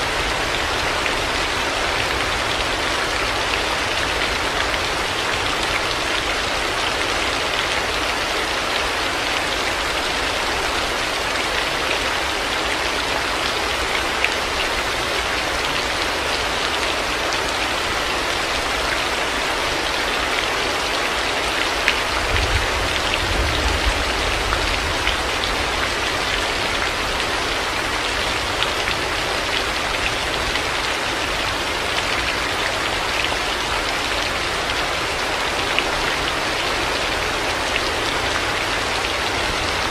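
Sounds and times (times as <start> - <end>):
heavy rain falling: 0.0 - 39.9
low rumble of thunder: 22.2 - 25.4.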